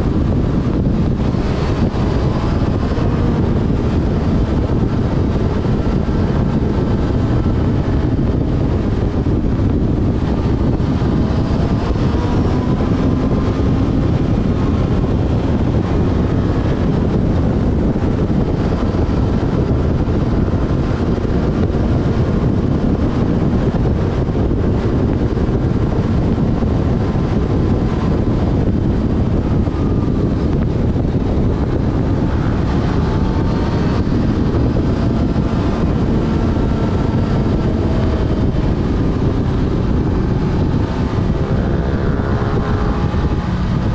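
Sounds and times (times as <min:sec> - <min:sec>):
motorcycle engine running: 0:00.0 - 0:43.9
wind noise on microphone: 0:00.0 - 0:43.9.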